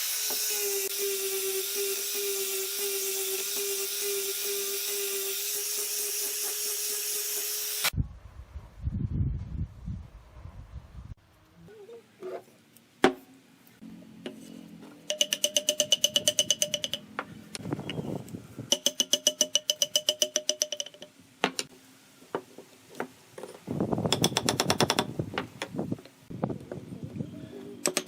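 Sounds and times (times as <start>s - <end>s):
tool clicking on bamboo: 15.0s - 17.1s, 18.7s - 21.7s, 24.1s - 25.7s.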